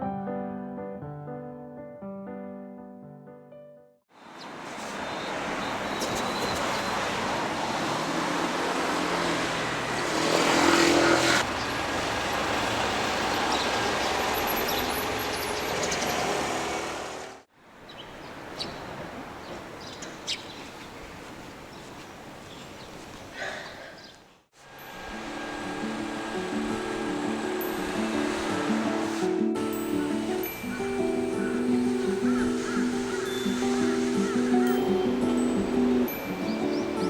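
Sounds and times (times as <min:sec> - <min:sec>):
traffic noise: 0:04.1 - 0:37.0
vehicle passing close: 0:04.5 - 0:17.5, 0:24.7 - 0:37.0.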